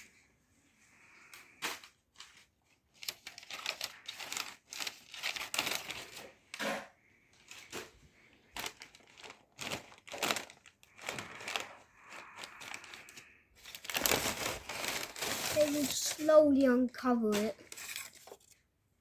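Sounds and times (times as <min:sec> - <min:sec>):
packing wrap crinkling and tearing: 0:01.6 - 0:06.3, 0:07.4 - 0:18.6.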